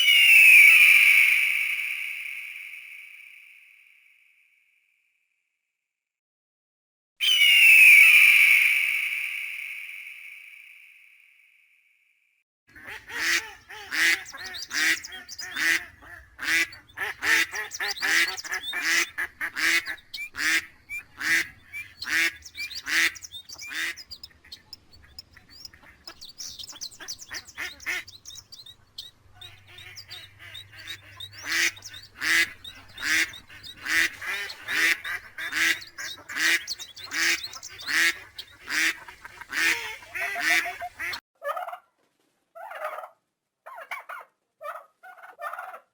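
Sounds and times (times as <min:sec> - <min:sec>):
ducks quacking: 0:12.7 - 0:41.7.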